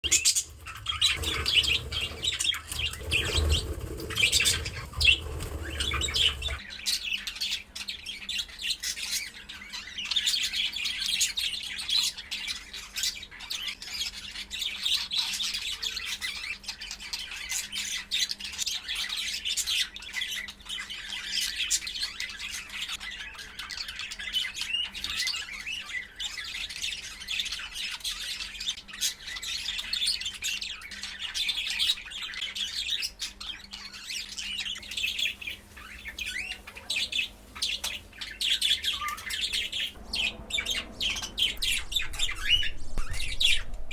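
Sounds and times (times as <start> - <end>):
low rumble: 39.8 - 43.9.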